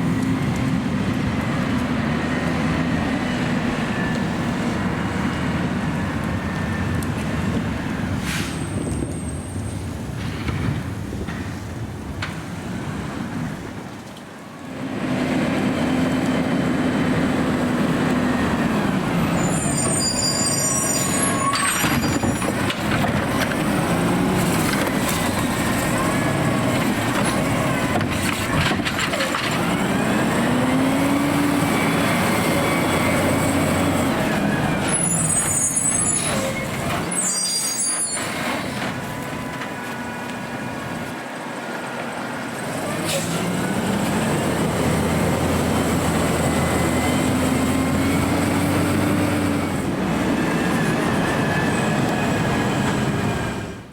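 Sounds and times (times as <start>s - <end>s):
short high-pitched squeals: 19.2s - 22.6s, 34.8s - 38.8s
garbage truck engine revving: 20.5s - 37.1s, 42.3s - 53.9s.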